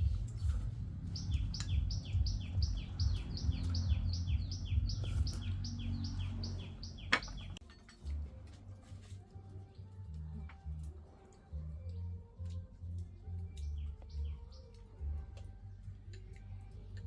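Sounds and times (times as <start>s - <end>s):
bird chirping: 0.0s - 7.6s, 12.9s - 15.2s
low rumble: 0.0s - 7.6s.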